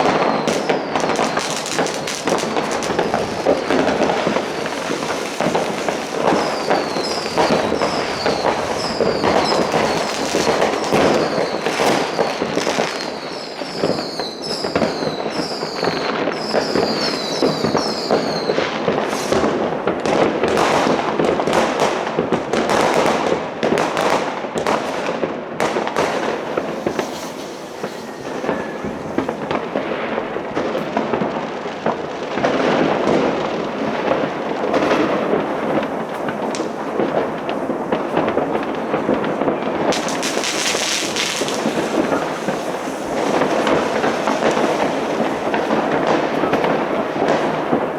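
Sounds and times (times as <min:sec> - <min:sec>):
fireworks crackling and banging: 0:00.0 - 0:47.9
short high whistles: 0:26.7 - 0:29.2.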